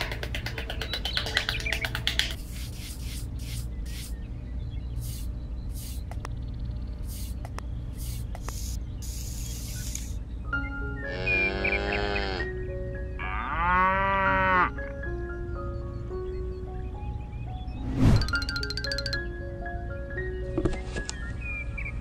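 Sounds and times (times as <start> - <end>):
steady low hum: 2.3 - 10.6
hand scratching sand: 2.4 - 4.1.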